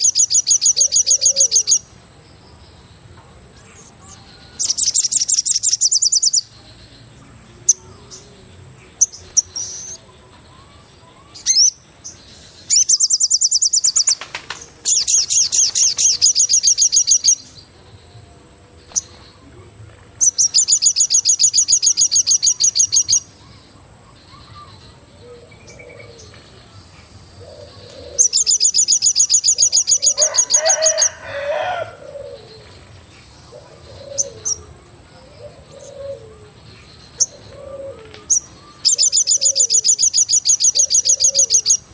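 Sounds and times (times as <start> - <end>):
lower bird calls: 0.0 - 1.9, 27.4 - 41.9
bird high rapid trills: 10.7 - 17.5, 27.4 - 32.6.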